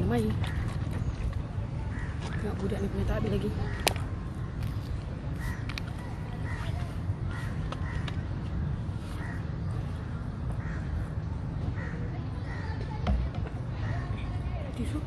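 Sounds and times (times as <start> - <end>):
bird calling: 1.8 - 13.0.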